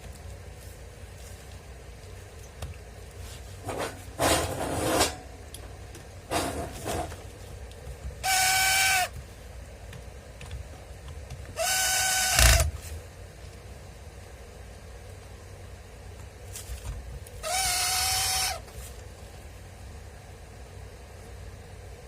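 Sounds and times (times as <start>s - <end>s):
angle grinder whining: 11.6s - 12.7s.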